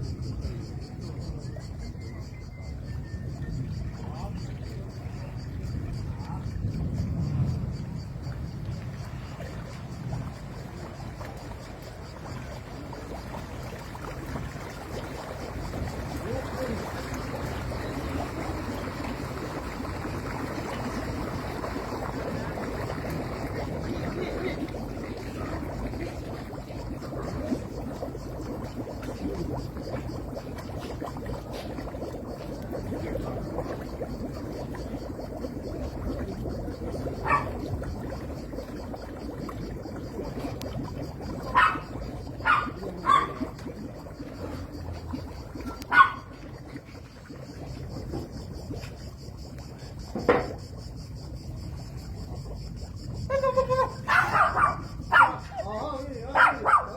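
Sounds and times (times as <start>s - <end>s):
rushing water: 6.6s - 50.5s
dog barking: 37.2s - 37.5s, 41.5s - 43.4s, 45.9s - 46.3s, 54.1s - 55.5s, 56.4s - 56.9s.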